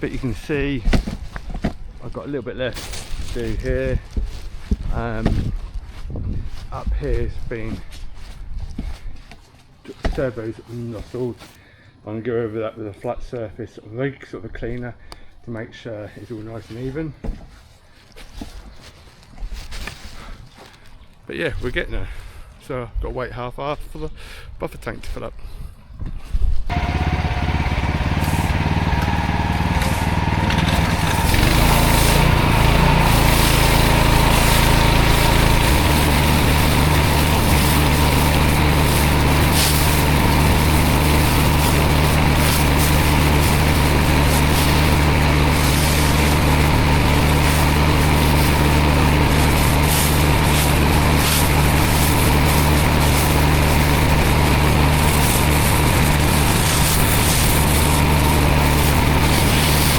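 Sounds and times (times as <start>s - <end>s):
pressure washer engine running: 26.7s - 59.9s
high-pressure water spray hiss: 28.2s - 28.5s, 29.5s - 59.9s.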